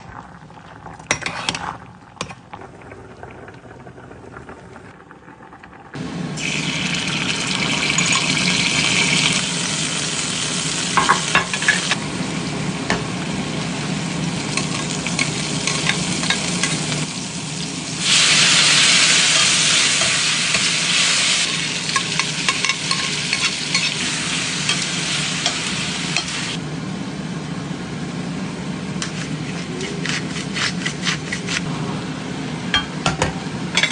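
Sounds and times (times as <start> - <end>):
food sizzling in a frying pan: 6.0 - 26.6.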